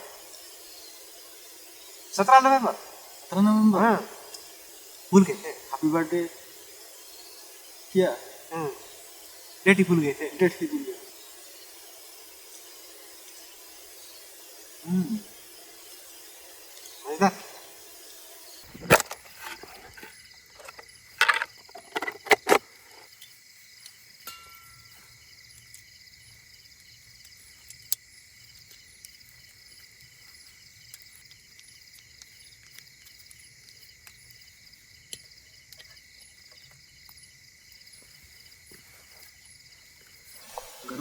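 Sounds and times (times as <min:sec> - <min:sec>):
crickets chirping: 0:00.0 - 0:41.0
sharp knocks and clatters: 0:18.7 - 0:23.1.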